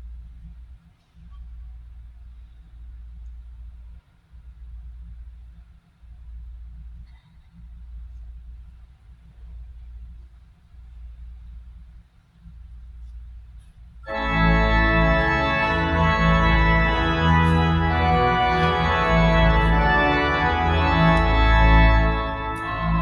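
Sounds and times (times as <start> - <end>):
church organ chords: 14.1 - 23.0.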